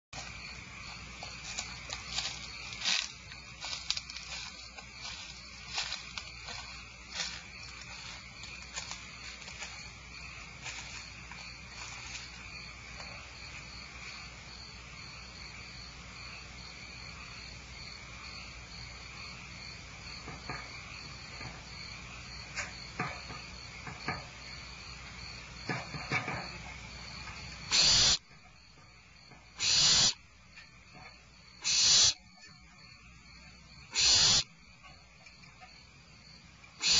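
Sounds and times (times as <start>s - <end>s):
high insect-like trill: 0.2s - 14.6s, 25.2s - 36.9s
barn owl screeching: 27.7s - 28.2s, 29.6s - 30.2s, 31.6s - 32.2s, 33.9s - 34.5s.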